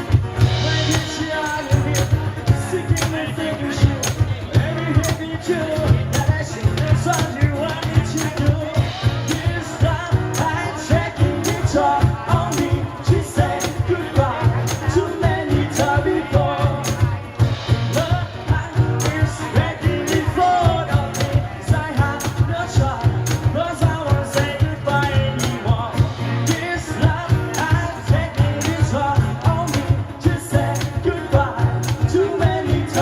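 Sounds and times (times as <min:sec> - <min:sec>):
bass: 0:00.0 - 0:33.0
drum beat: 0:00.0 - 0:33.0
melodic lead line: 0:00.0 - 0:33.0.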